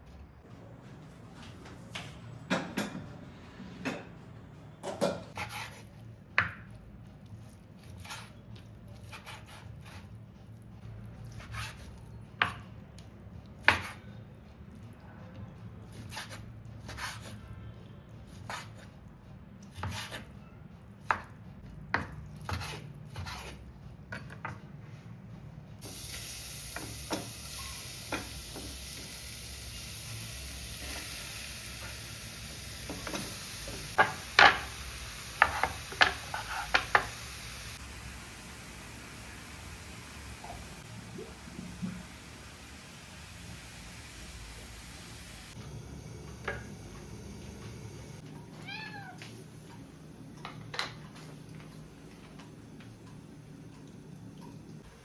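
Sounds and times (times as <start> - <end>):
knife chopping on cutting board: 4.9 - 5.8, 13.6 - 14.0, 19.7 - 20.3, 21.9 - 24.6, 35.4 - 37.1
frying sizzle in pan: 25.8 - 48.2.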